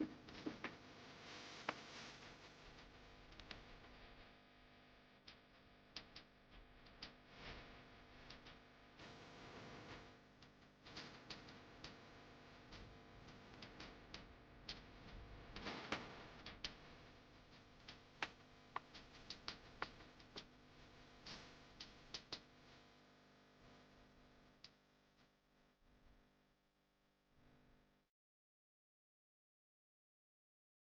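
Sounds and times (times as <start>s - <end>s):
faint irregular clicks and taps: 1.6s - 3.7s, 5.2s - 8.6s, 9.9s - 12.1s, 12.7s - 22.8s.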